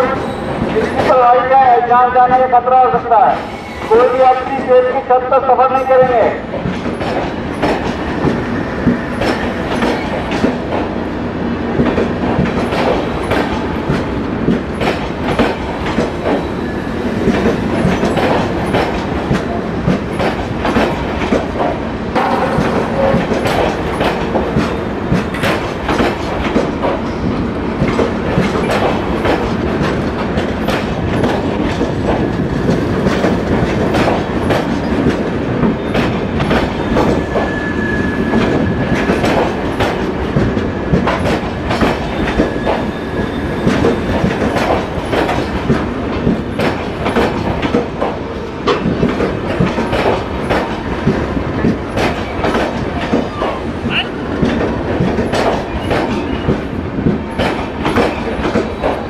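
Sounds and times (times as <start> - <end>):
train coaches rumbling past: 0.0 - 59.0
wheels clacking over rail joints: 6.0 - 11.0, 11.8 - 37.5, 38.3 - 59.0.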